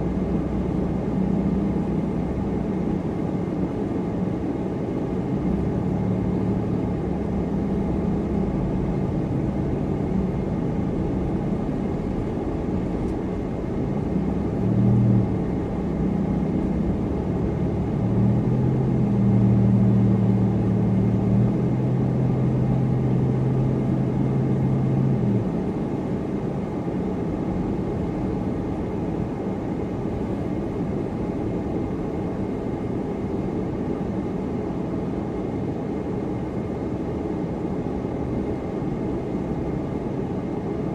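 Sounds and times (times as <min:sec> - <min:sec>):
low car engine hum: 0:00.0 - 0:40.9
road noise: 0:00.0 - 0:40.9.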